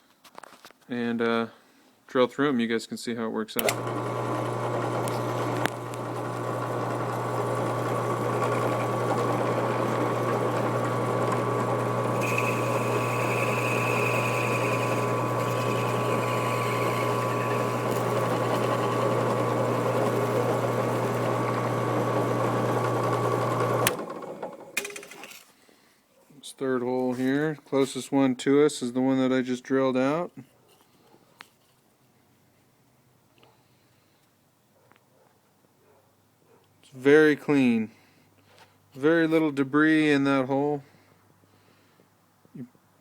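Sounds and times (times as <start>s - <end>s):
drill press drilling: 3.6s - 25.3s.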